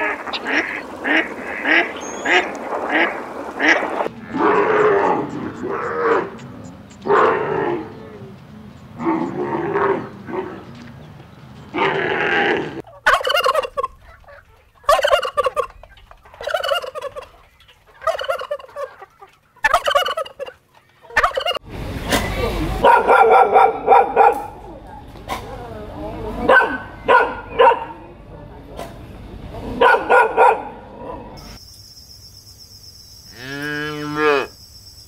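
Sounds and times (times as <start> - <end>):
turkeys gobbling: 0.0 - 8.4, 12.8 - 22.2
drawn-out animal calls: 0.0 - 21.6.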